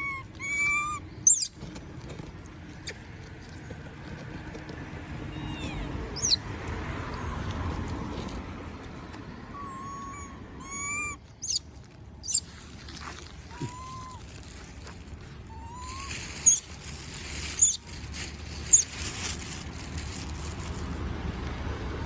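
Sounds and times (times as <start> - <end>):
monkey whimpering coo calls: 0.0 - 1.5, 5.4 - 6.4, 9.5 - 11.6, 13.4 - 14.2
monkey high-pitched squeaks: 0.0 - 1.8, 5.3 - 6.5, 9.5 - 14.6, 15.5 - 19.2.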